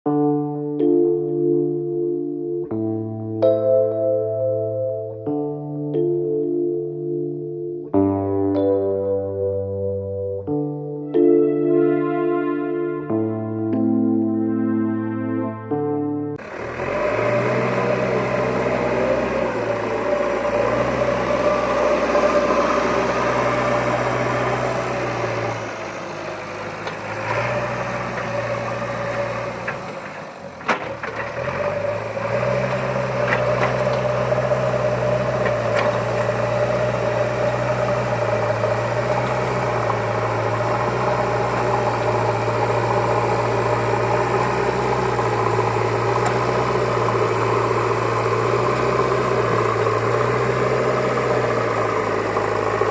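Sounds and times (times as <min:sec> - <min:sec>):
engine-like drone: 0:16.3 - 0:52.9.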